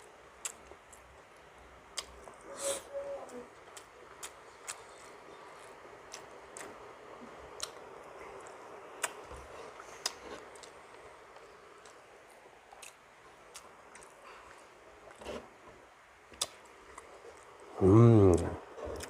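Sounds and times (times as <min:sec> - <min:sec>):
person chewing with wet mouth noises: 0:00.4 - 0:01.1, 0:03.2 - 0:06.8, 0:07.4 - 0:15.4.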